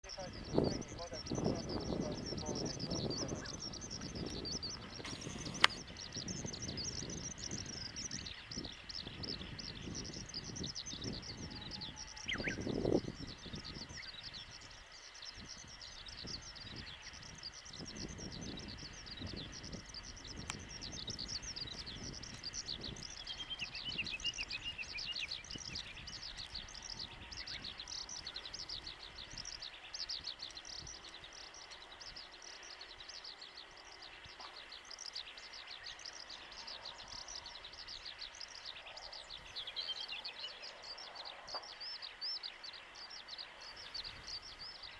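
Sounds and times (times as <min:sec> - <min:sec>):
wind on microphone: 0:00.0 - 0:32.2, 0:43.3 - 0:44.9
birds chirping: 0:00.0 - 0:44.9.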